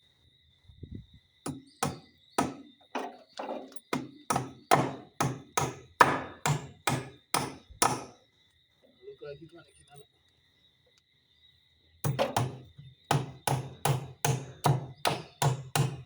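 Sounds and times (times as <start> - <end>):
hammer driving a nail: 1.5 - 3.1, 3.9 - 8.2, 12.0 - 16.0.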